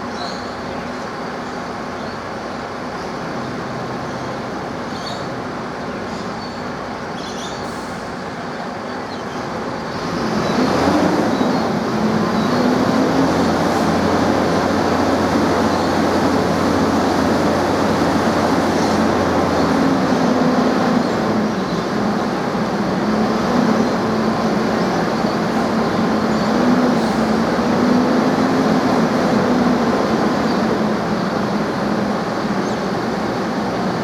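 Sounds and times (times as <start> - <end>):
train running: 8.0 - 34.0.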